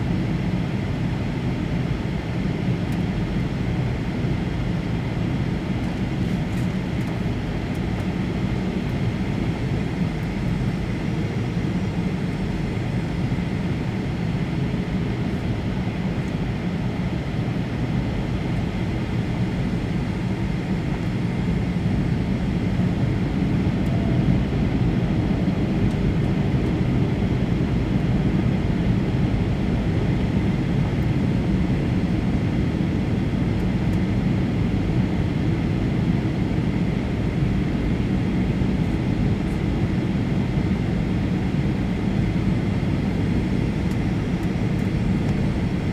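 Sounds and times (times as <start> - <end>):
airplane cabin airflow rush: 0.0 - 45.9
jet engines humming: 39.0 - 45.9.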